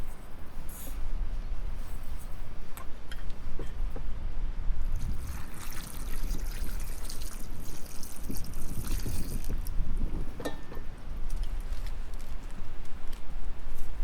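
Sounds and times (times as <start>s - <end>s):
water trickling: 5.0s - 9.7s.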